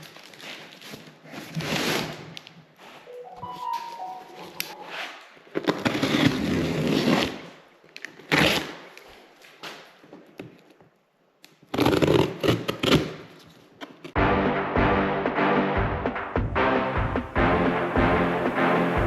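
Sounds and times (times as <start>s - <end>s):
background music: 3.1s - 5.0s, 14.2s - 19.0s.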